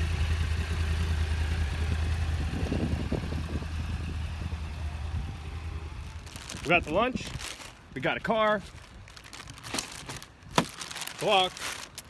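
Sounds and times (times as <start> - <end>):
motorcycle engine idling: 0.0 - 6.4.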